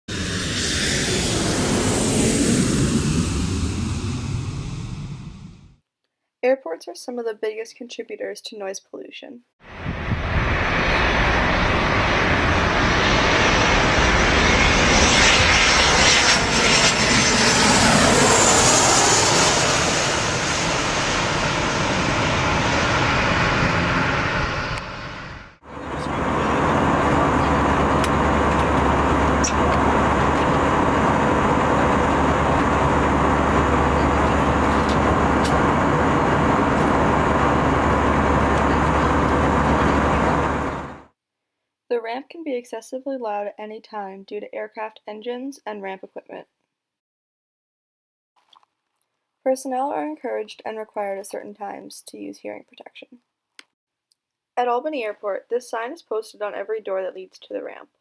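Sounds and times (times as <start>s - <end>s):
aircraft engine drone: 0.1s - 5.8s, 9.7s - 41.1s
aircraft engine whine: 0.1s - 5.8s, 9.6s - 41.1s.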